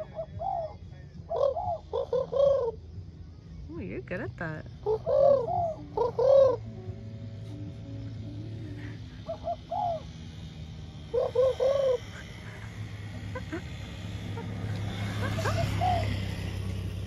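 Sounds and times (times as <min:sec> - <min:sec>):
bird cooing: 0:00.0 - 0:03.0, 0:04.7 - 0:07.0, 0:08.5 - 0:16.9
steady low hum: 0:00.0 - 0:17.0.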